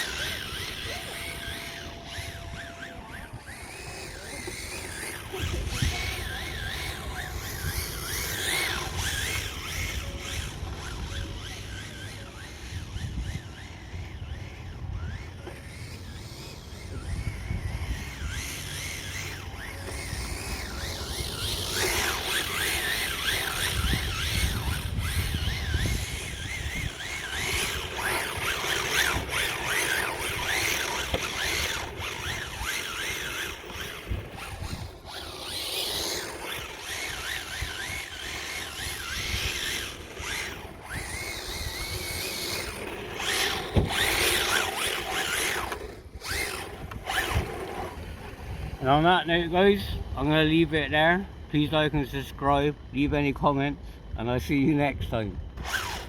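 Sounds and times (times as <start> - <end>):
wind rumble on microphone: 0.0 - 11.5, 12.4 - 15.4, 16.6 - 35.7, 36.4 - 56.0
rc car motor whining: 0.0 - 56.0.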